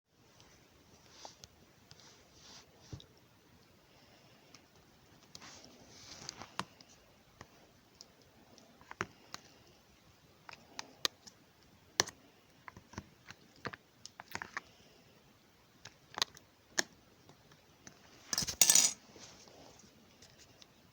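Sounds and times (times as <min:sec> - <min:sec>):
soft squishy hiss: 0:00.2 - 0:12.6.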